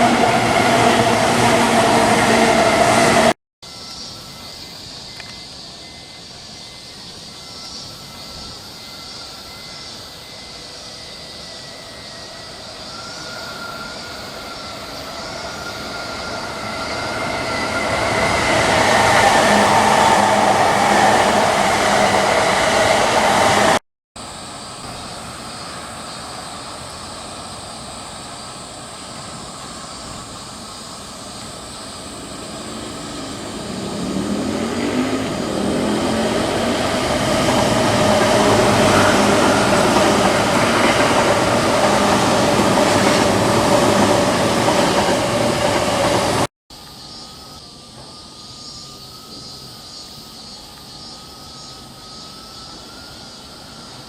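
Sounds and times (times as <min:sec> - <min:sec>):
train wheels rumbling: 0:00.0 - 0:03.4, 0:11.3 - 0:46.5
thin steady tones: 0:00.0 - 0:23.4
electric train passing: 0:00.0 - 0:49.4, 0:50.4 - 0:54.0.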